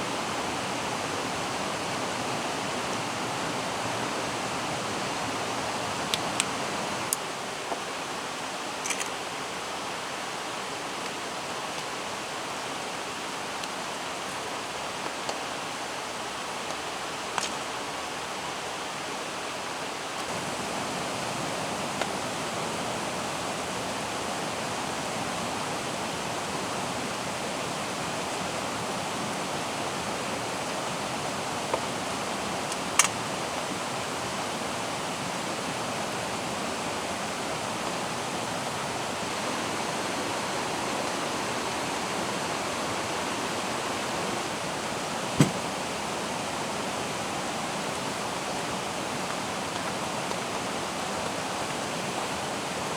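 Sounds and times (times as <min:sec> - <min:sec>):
mountain stream rushing: 0:00.0 - 0:52.9
rain falling: 0:00.0 - 0:52.9
sharp taps: 0:45.4 - 0:45.6.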